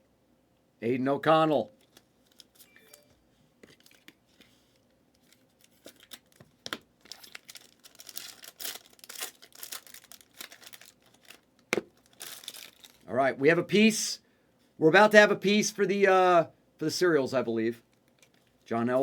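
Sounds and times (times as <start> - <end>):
wrapper tearing and crinkling: 5.2 - 13.1.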